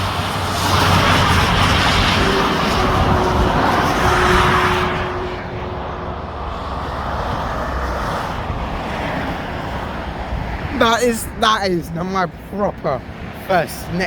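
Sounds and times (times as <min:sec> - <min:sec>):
rush of motorway traffic: 0:00.0 - 0:14.0.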